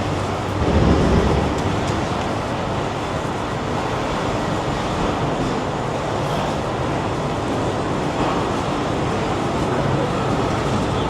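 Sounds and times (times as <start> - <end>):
low rumble of passing vehicle: 0.0 - 2.8
steady traffic noise: 0.0 - 11.0.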